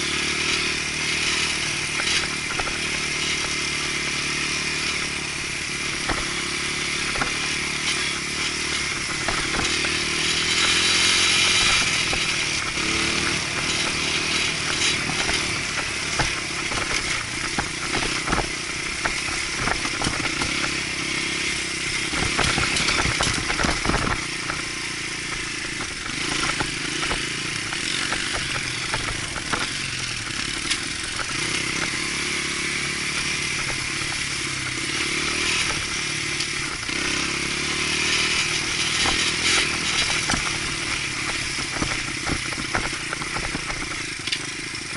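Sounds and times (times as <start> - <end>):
dirt bike engine revving: 0.0 - 44.9
knocks and clatter: 8.7 - 20.8, 22.1 - 24.7, 38.2 - 44.4.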